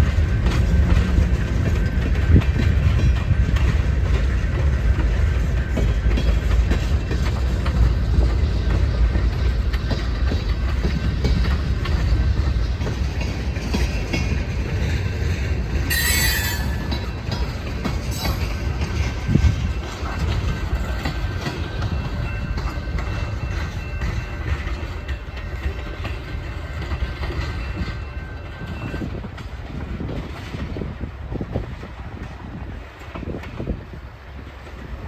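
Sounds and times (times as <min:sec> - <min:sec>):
freight train cars rolling: 0:00.0 - 0:35.0
wheels clacking over rail joints: 0:00.0 - 0:35.0
high-pitched wheel squeal: 0:15.9 - 0:17.2.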